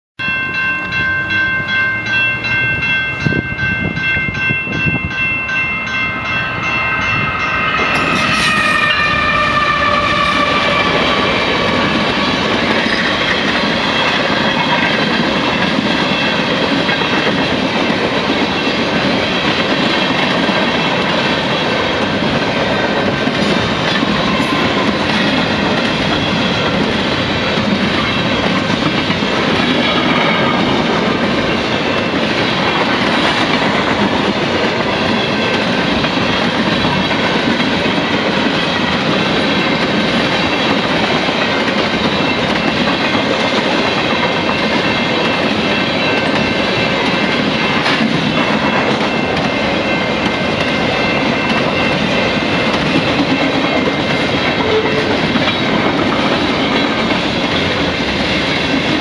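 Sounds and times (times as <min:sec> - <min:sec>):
train horn: 0:07.4 - 0:12.5, 0:54.6 - 0:55.3.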